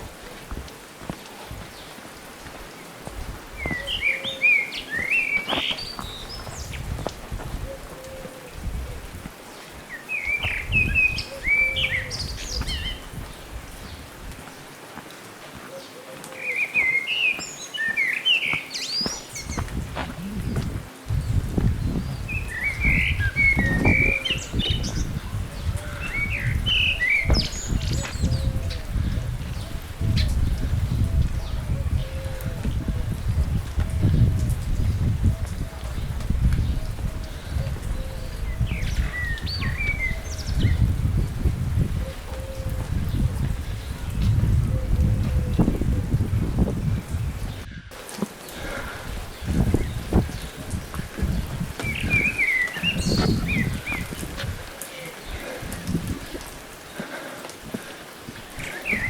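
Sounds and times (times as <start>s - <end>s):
small birds chirping: 0.0s - 45.9s, 46.5s - 59.0s
songbird warbling: 9.9s - 13.0s
steady low rumble: 19.5s - 22.9s.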